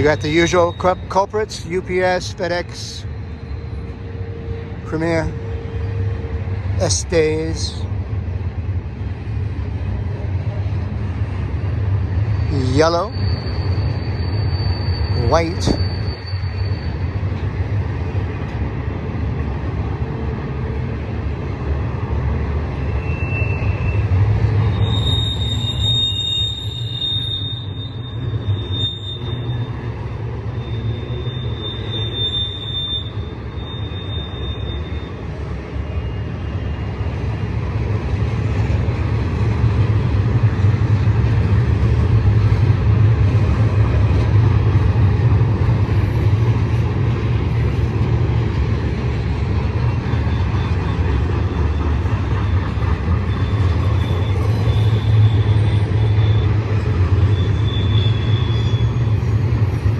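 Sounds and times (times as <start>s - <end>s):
high wheel squeal: 0.0s - 7.9s, 11.3s - 17.8s, 22.7s - 37.4s, 48.8s - 59.9s
freight train rumbling past: 0.0s - 59.9s.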